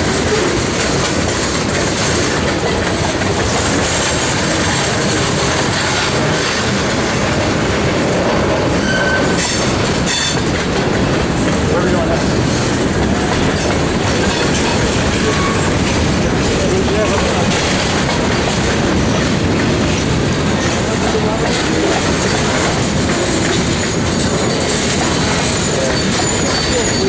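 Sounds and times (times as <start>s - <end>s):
train wheels clattering over rails: 0.0s - 27.0s
high wheel squeal: 8.7s - 10.4s, 23.8s - 27.0s.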